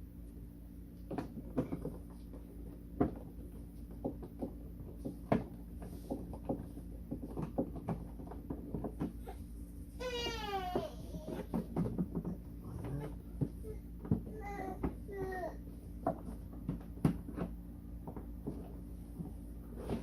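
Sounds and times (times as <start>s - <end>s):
steady low hum: 0.0s - 20.0s
plastic parts clicking and knocking: 10.7s - 12.4s.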